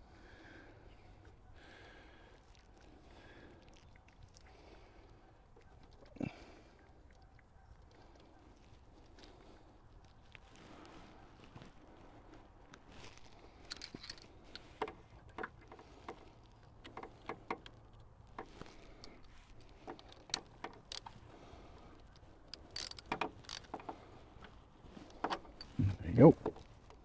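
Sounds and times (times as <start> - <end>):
hand tools clicking on metal: 13.7 - 14.9, 18.4 - 21.2, 22.1 - 24.0, 25.1 - 25.8.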